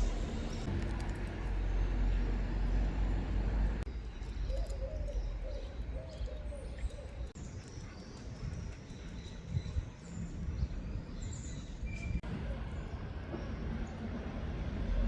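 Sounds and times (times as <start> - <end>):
low outdoor rumble: 0.0 - 7.4
dove cooing: 4.4 - 7.3.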